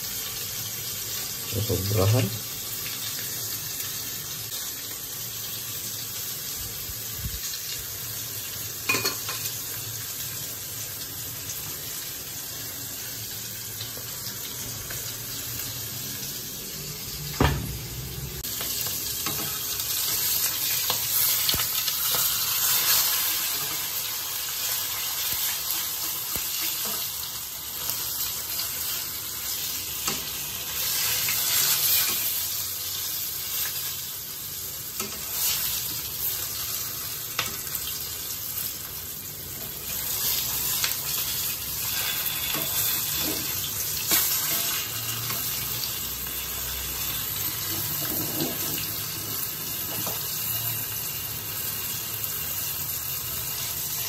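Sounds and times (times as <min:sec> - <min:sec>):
water boiling in a pot: 0:00.0 - 0:16.0, 0:18.3 - 0:54.0
fish sizzling in oil: 0:00.0 - 0:54.0.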